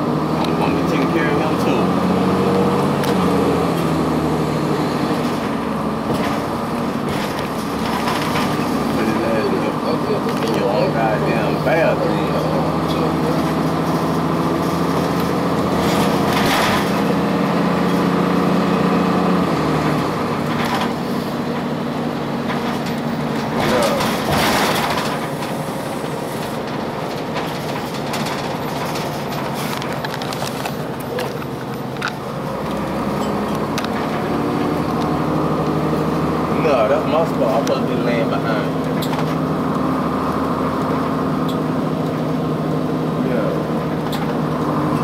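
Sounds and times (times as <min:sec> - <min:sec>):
diesel bus engine running: 0:00.0 - 0:45.0
knocks and rattles: 0:06.0 - 0:08.9, 0:22.4 - 0:25.6, 0:26.4 - 0:32.2.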